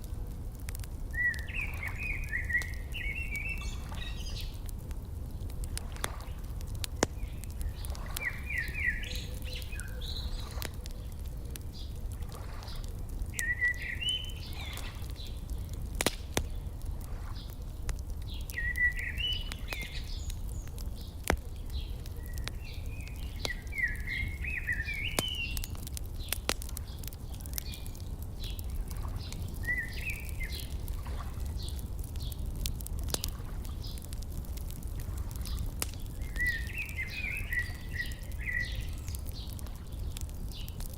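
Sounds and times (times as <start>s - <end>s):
wood fire crackling and popping: 0.0s - 40.9s
songbirds warbling: 1.0s - 40.9s.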